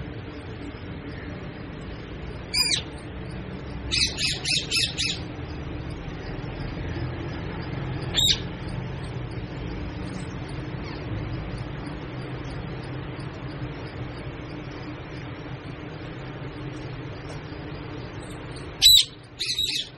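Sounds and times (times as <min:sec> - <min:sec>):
low background hum: 0:00.0 - 0:19.9
parrot squawking: 0:02.5 - 0:02.9, 0:03.9 - 0:05.3, 0:08.1 - 0:08.5, 0:18.8 - 0:19.9.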